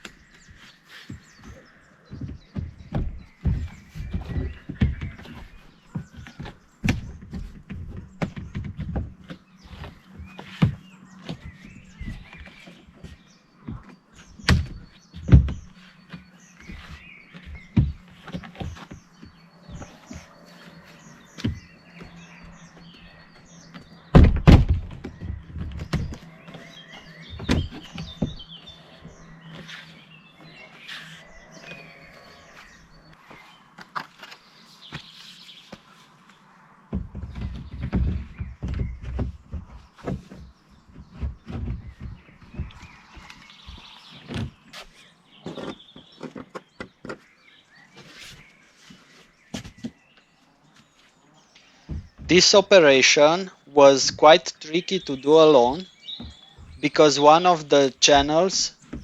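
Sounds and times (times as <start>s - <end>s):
small birds chirping: 0.0s - 59.0s
plastic panels thudding and knocking: 1.1s - 29.7s, 36.9s - 44.7s, 51.8s - 52.7s, 58.0s - 59.0s.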